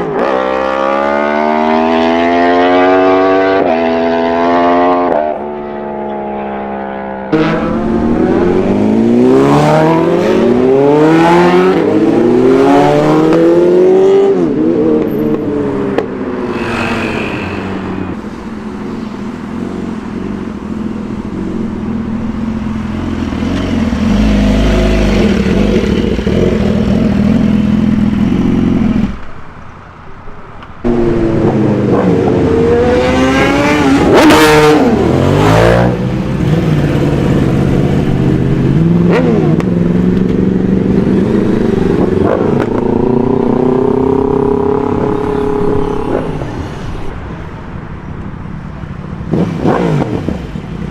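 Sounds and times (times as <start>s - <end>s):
motorcycle engines revving: 0.0s - 29.7s, 30.6s - 50.9s.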